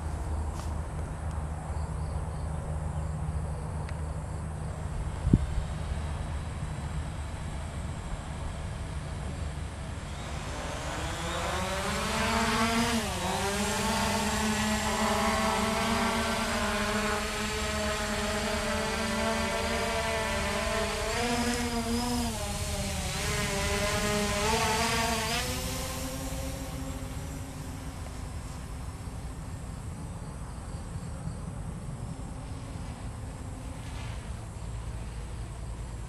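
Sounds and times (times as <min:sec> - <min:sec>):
drone propellers buzzing: 0:04.4 - 0:30.4.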